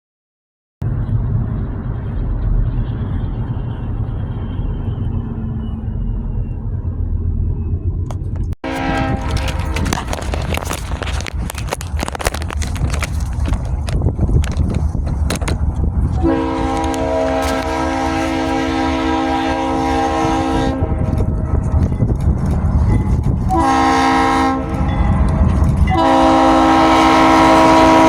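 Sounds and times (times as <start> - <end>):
passing train rumble: 0.8 - 28.0
locomotive air horn blast: 8.6 - 10.0, 16.1 - 21.2, 23.5 - 25.3, 25.9 - 28.0.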